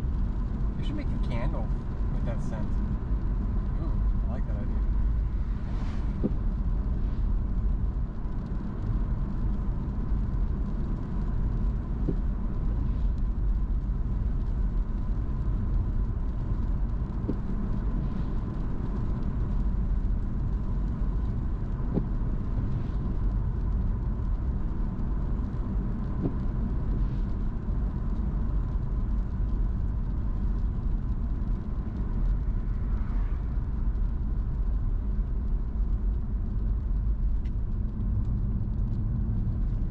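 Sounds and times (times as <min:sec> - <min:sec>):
car road and engine rumble: 0:00.0 - 0:39.9
faint ticks: 0:08.2 - 0:39.9.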